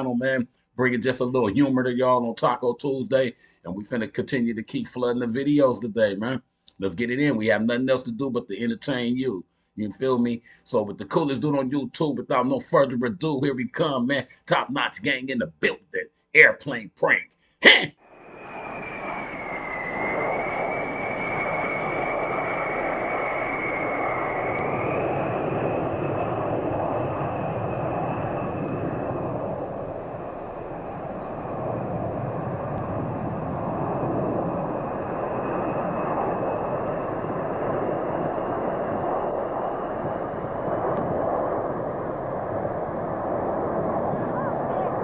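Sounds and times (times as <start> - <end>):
high engine whine: 18.1 - 45.0
light airplane engine running: 18.2 - 45.0.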